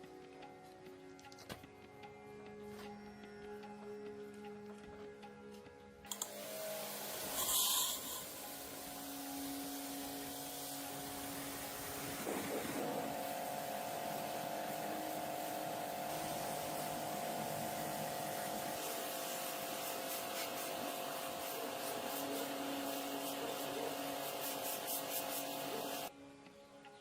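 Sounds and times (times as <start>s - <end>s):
workshop machine hissing and humming: 6.1s - 26.1s.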